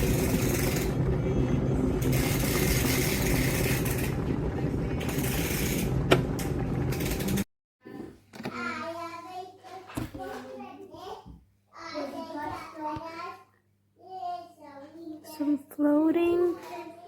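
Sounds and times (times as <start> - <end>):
appliance mains hum: 0.0 - 7.4.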